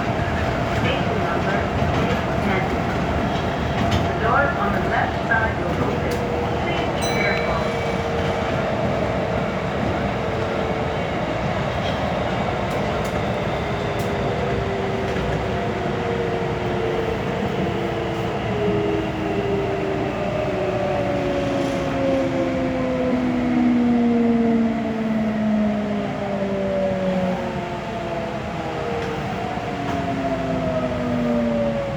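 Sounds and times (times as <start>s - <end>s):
train running rumble: 0.0s - 19.3s.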